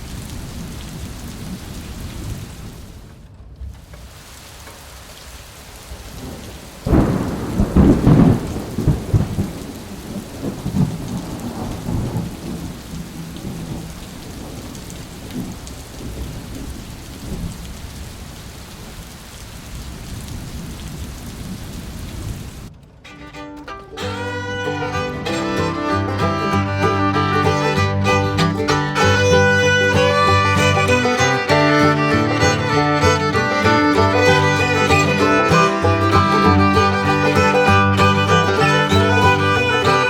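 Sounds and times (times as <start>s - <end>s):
heavy rain: 0.0s - 40.0s
thunder clap rumbling: 6.1s - 17.7s.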